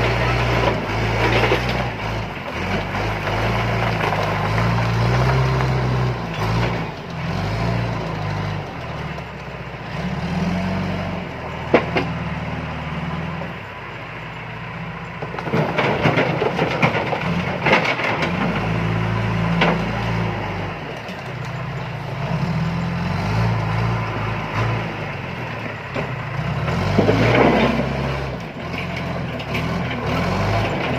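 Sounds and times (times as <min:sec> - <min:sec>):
diesel engine working under load: 0:00.0 - 0:30.9
clattering knocks of rock: 0:00.6 - 0:06.9, 0:15.2 - 0:18.8.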